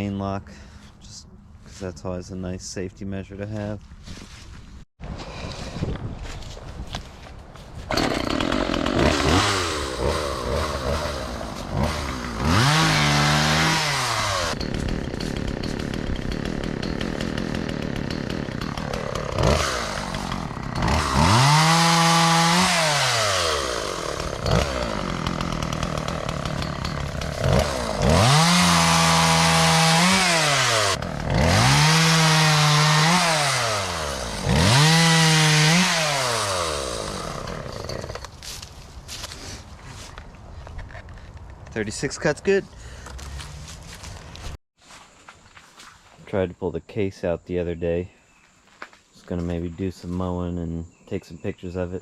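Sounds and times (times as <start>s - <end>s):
chainsaw cutting wood: 7.8s - 39.4s.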